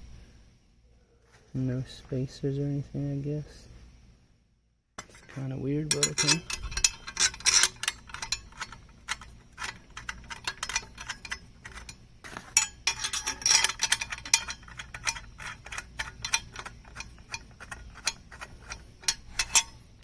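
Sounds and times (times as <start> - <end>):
metallic clicks of bolts: 5.0 - 19.8.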